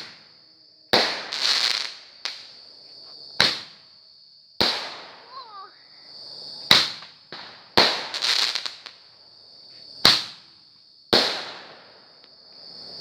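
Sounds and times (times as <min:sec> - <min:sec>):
firework crackling: 0:00.0 - 0:00.3, 0:01.0 - 0:02.6, 0:03.4 - 0:03.8, 0:04.6 - 0:05.8, 0:06.6 - 0:09.0, 0:10.0 - 0:10.5, 0:11.1 - 0:12.1
fireworks bangs: 0:00.0 - 0:00.3, 0:00.9 - 0:02.5, 0:03.4 - 0:03.8, 0:04.6 - 0:05.8, 0:06.6 - 0:09.0, 0:10.0 - 0:10.5, 0:11.1 - 0:12.1
small firework pop: 0:01.0 - 0:02.5, 0:03.4 - 0:03.8, 0:06.7 - 0:09.0, 0:10.0 - 0:10.5.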